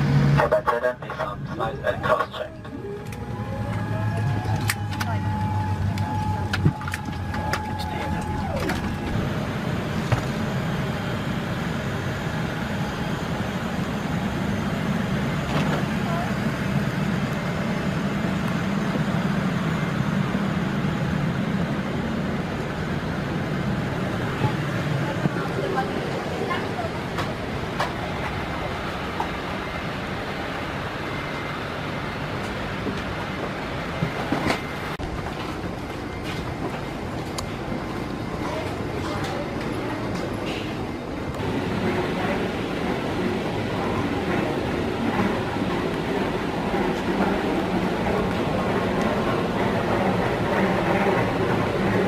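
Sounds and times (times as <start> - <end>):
vehicle rumble from inside: 0.0 - 11.3
aircraft cabin rumble and hiss: 0.0 - 52.0.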